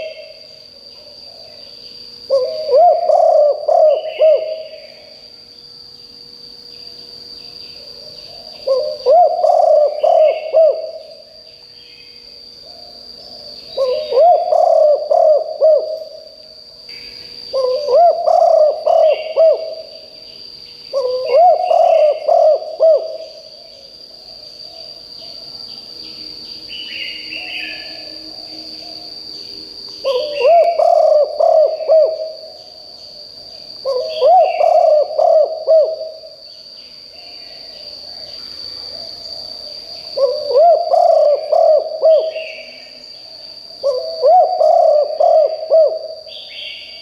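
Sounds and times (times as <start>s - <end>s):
dove cooing: 0.0s - 0.4s, 2.3s - 5.0s, 7.8s - 11.2s, 12.7s - 16.2s, 17.5s - 20.0s, 20.9s - 23.4s, 30.0s - 32.6s, 33.8s - 36.4s, 40.2s - 43.0s, 43.8s - 46.8s.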